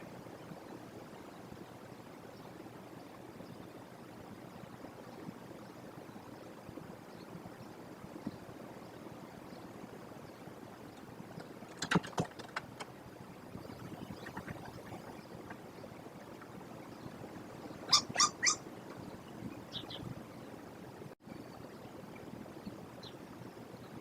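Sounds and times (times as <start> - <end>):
kestrels calling harshly: 17.8 - 18.6.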